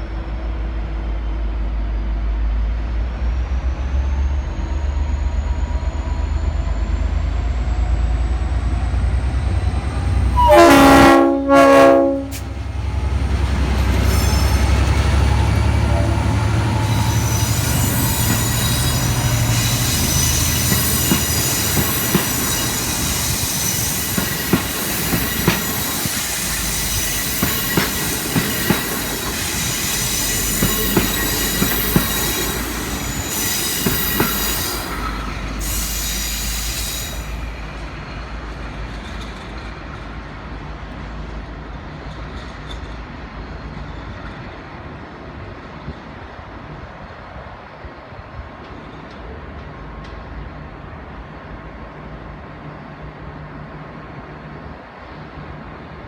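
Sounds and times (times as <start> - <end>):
locomotive drone: 0.0 - 45.5
wheel squeal: 13.9 - 38.2.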